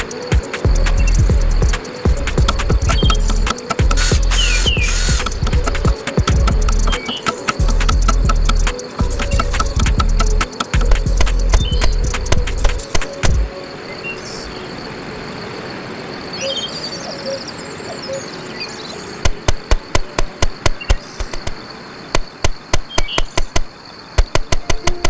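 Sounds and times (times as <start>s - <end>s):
faint bird chirp: 0.0s - 19.2s, 20.2s - 25.0s
forest ambience: 0.0s - 25.0s
hammer driving nails: 2.4s - 11.6s.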